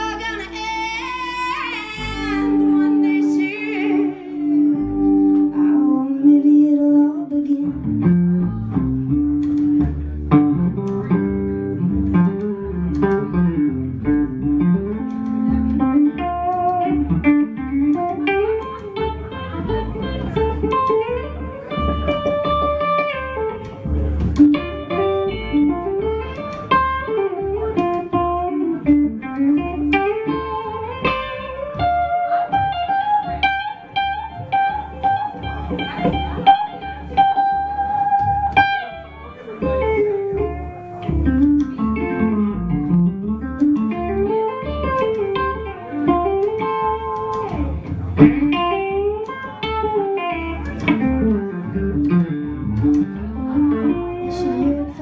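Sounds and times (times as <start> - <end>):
lead guitar with bent notes: 0.0 - 6.4, 7.3 - 55.0
plucked upright bass: 0.0 - 55.0.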